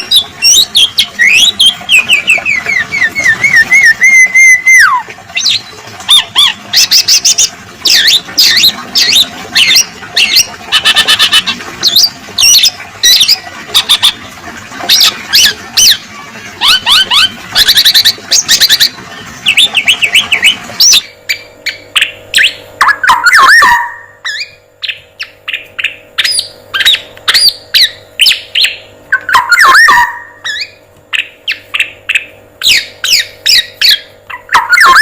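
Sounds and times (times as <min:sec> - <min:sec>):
high bird chattering and calls: 0:00.0 - 0:14.2, 0:14.9 - 0:35.0
wavering bird whistle: 0:00.1 - 0:07.3, 0:19.5 - 0:35.0.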